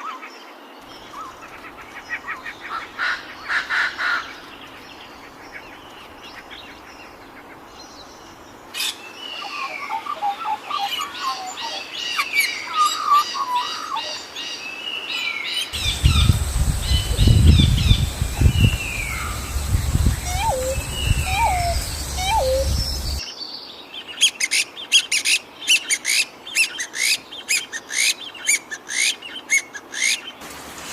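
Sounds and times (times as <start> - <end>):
birds chirping and singing: 15.8 - 23.2
low rumbling noise: 15.8 - 23.2.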